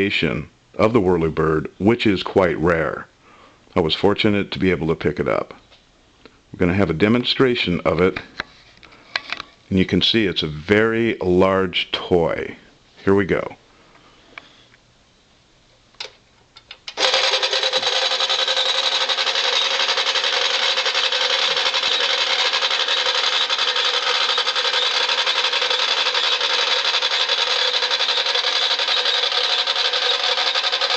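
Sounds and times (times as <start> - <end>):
toy motor and gears whirring: 16.9 - 30.9.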